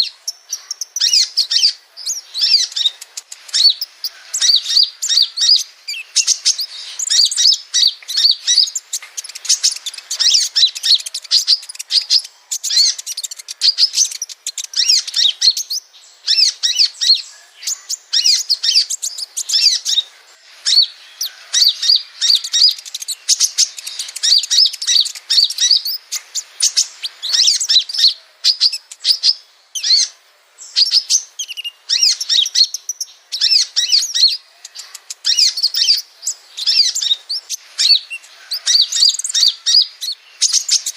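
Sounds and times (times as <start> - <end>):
bird twittering and chirping: 0.0 - 40.9.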